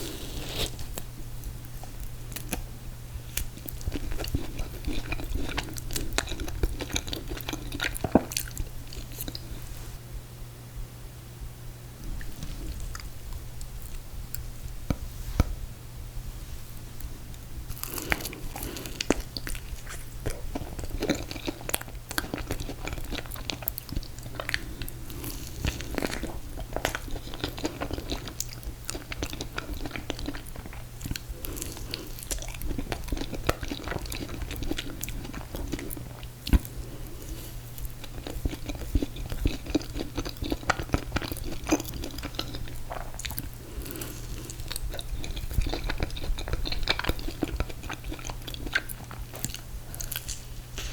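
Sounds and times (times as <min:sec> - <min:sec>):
person chewing ice cream cake: 0:00.0 - 0:09.8, 0:12.0 - 0:15.6, 0:16.9 - 0:50.9
low steady hum: 0:00.0 - 0:50.9.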